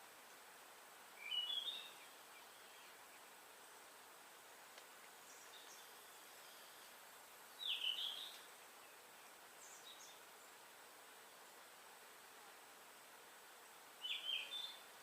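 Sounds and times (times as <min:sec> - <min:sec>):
faint steady hiss: 0:00.0 - 0:15.0
faint high bird chirps: 0:01.2 - 0:03.3, 0:07.6 - 0:10.5, 0:14.0 - 0:15.0.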